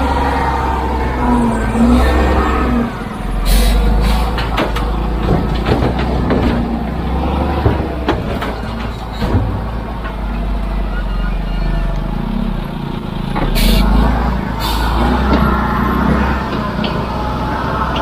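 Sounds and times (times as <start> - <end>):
heavy vehicle engine running: 0.0 - 18.0
knocks and clanks: 3.5 - 10.6.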